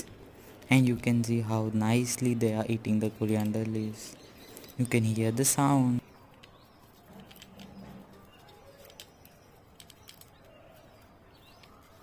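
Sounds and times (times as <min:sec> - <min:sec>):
birds nibbling leaves: 0:02.8 - 0:12.0.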